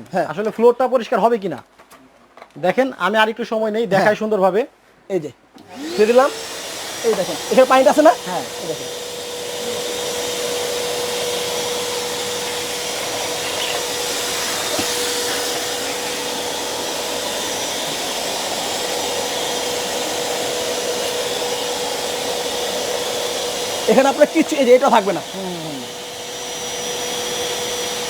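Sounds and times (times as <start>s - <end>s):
vacuum cleaner whining: 5.6s - 28.0s
water being sucked up: 10.0s - 21.5s.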